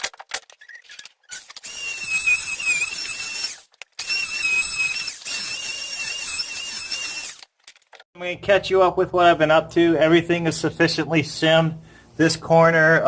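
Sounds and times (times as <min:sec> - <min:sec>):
power tool motor whining: 0:01.3 - 0:07.5.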